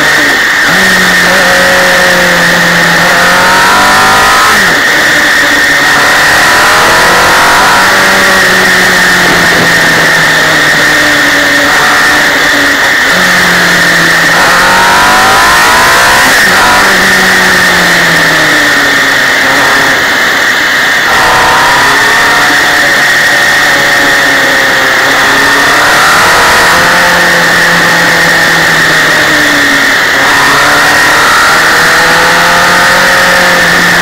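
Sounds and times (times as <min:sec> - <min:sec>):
motorcycle engine accelerating: 0:00.0 - 0:34.0
wind and road rush: 0:00.0 - 0:34.0.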